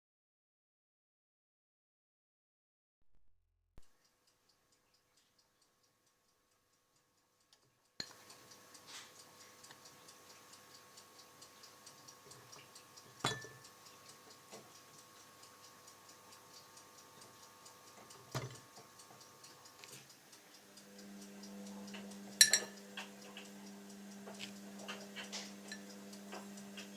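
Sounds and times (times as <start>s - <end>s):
fast faint ticking: 8.0s - 26.9s.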